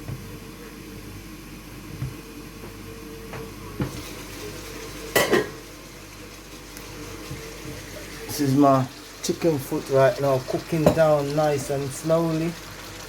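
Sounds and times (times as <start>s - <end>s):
cookware clanking: 5.1s - 5.6s, 10.5s - 11.1s.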